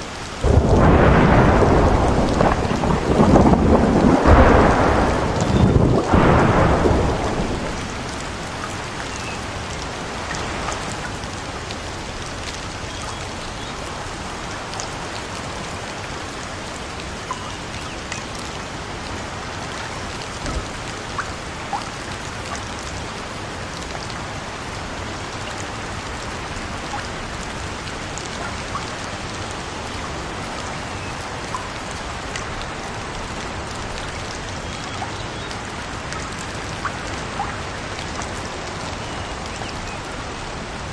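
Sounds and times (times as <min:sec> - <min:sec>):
rain-like hiss: 0:00.0 - 0:40.9
wood fire crackling: 0:00.4 - 0:10.8.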